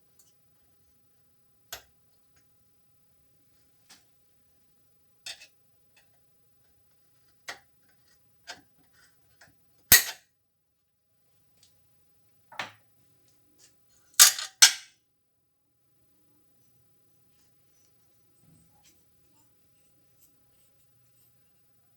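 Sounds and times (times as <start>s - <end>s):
tools and machine parts clicking: 14.2s - 14.9s.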